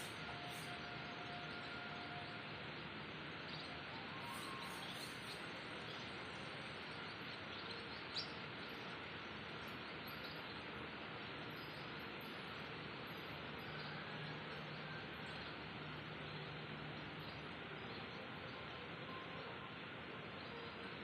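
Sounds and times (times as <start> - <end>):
steady outdoor hiss: 0.0 - 21.0
faint bird chirps: 3.4 - 9.0.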